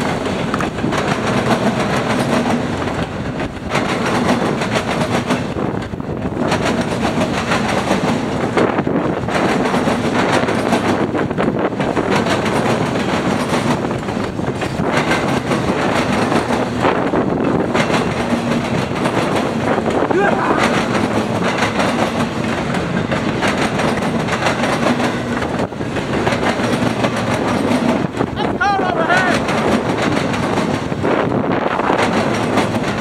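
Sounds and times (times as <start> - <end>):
train wheels clattering on rails: 0.0 - 33.0.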